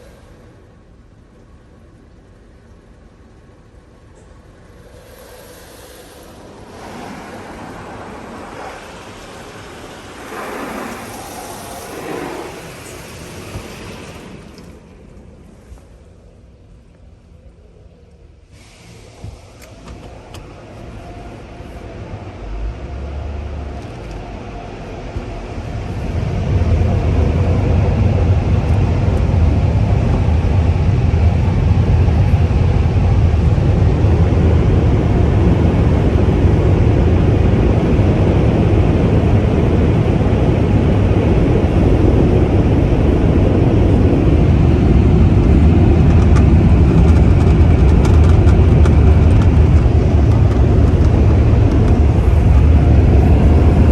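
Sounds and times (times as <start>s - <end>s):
car wash dryer blowers: 0.0s - 53.9s.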